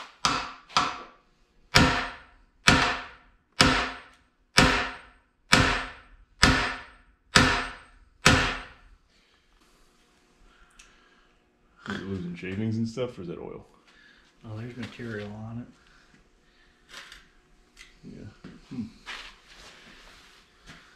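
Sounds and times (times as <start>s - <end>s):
heavy hammer blows on metal: 1.7s - 8.8s.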